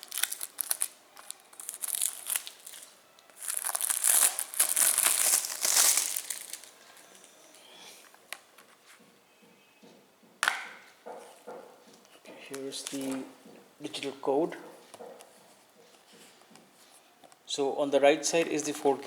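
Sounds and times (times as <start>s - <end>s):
plastic shrink-wrap crinkling and tearing: 0.0s - 7.1s.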